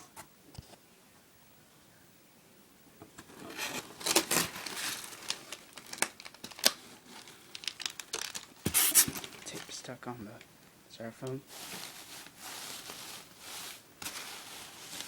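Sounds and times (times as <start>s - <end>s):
crinkling: 3.2s - 15.0s
packing tape tearing: 3.6s - 9.7s.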